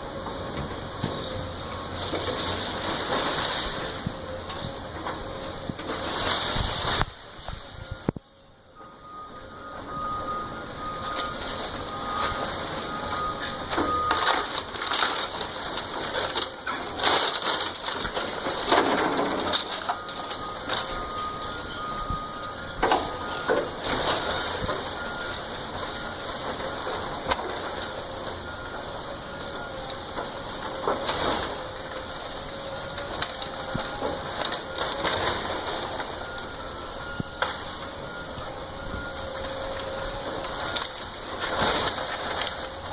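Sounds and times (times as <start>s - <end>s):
wood and debris cracking: 0.2s - 8.2s, 10.8s - 42.9s.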